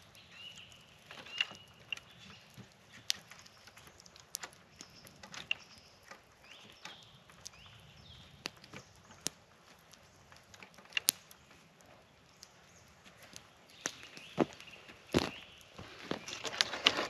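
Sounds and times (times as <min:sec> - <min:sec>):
faint high bird chirps: 0:00.0 - 0:04.1
sharp clicks and snaps: 0:00.0 - 0:17.0.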